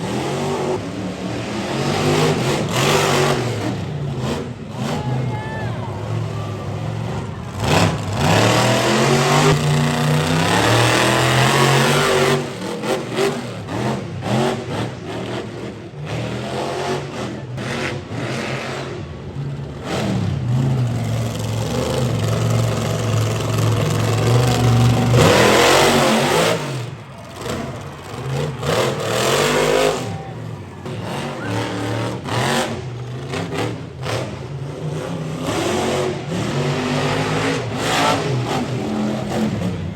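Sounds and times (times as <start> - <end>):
monster truck engines revving: 0.0 - 39.9.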